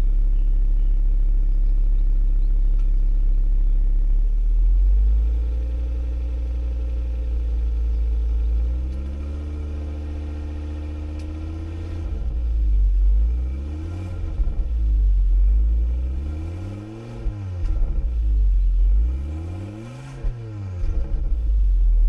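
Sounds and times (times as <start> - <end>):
car engine revving: 8.2 - 22.0.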